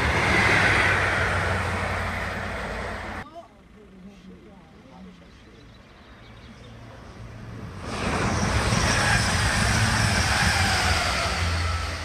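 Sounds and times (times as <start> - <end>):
train rushing past: 0.0 - 3.2, 7.2 - 12.0.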